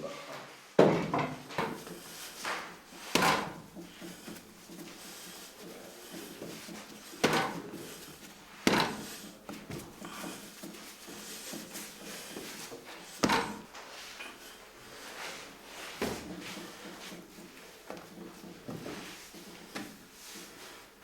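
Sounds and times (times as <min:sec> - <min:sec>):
sharp knocks: 0:00.9 - 0:04.4, 0:08.6 - 0:10.3, 0:13.2 - 0:13.7
equipment clattering: 0:01.6 - 0:13.7.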